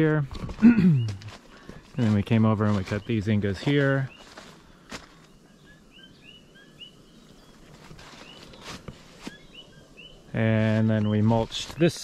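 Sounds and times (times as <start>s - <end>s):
rustles in vegetation: 0.0s - 12.0s
small birds chirping: 0.0s - 12.0s.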